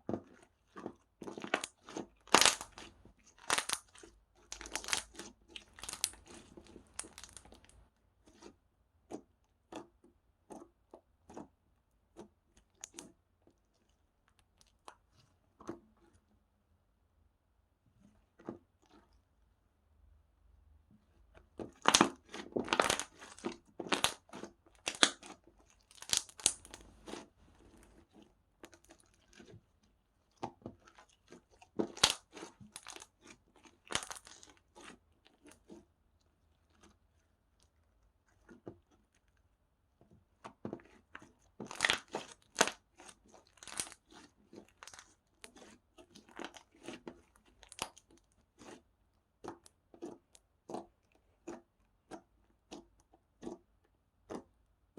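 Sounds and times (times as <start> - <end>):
slime crackling and popping: 1.4 - 7.8, 21.7 - 27.2, 31.0 - 34.9, 41.6 - 48.8.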